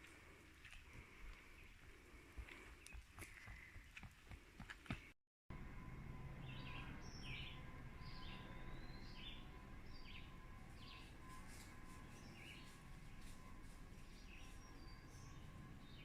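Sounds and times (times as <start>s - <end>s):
low steady background rumble: 5.5s - 16.0s
bird chirping: 6.2s - 16.0s.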